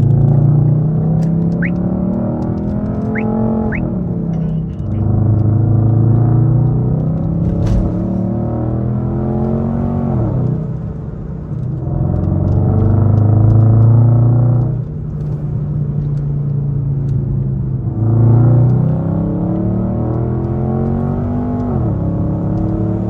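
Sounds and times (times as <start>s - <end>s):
car exhaust droning while driving: 0.0s - 23.0s.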